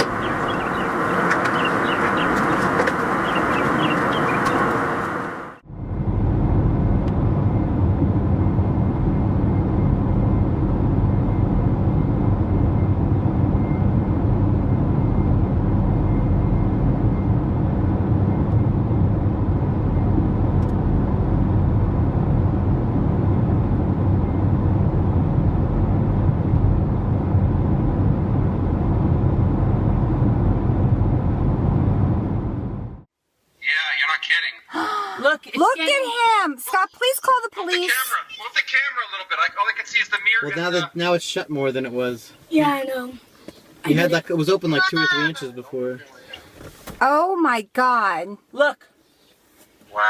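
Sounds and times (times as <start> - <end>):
low rumbling noise: 0.0 - 33.1.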